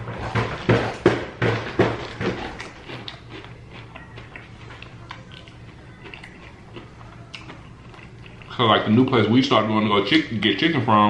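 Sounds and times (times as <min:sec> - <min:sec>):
crunching fried chicken: 0:01.9 - 0:09.4
wet chewing clicks: 0:02.0 - 0:08.6.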